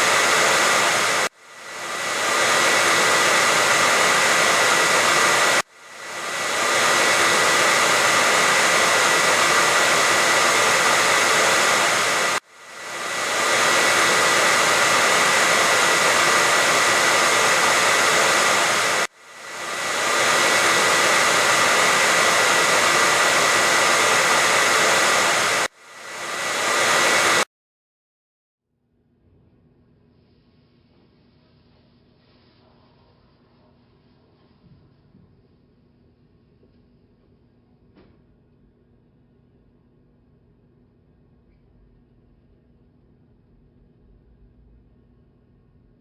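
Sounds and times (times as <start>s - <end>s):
hair dryer blowing with whine: 0.0s - 27.5s.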